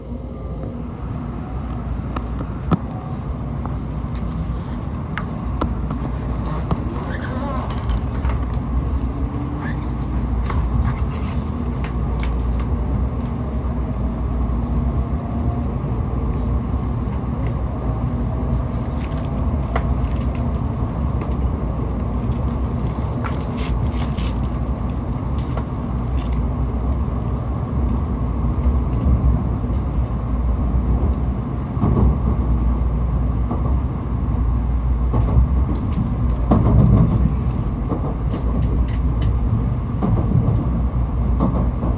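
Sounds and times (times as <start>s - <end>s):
faint rising whine: 0.0s - 4.0s
train interior rumble: 0.0s - 41.9s.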